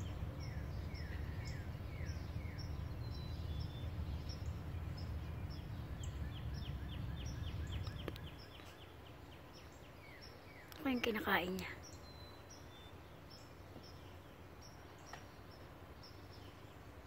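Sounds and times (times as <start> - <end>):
low rumble: 0.0 - 8.6
songbirds singing: 0.0 - 17.0.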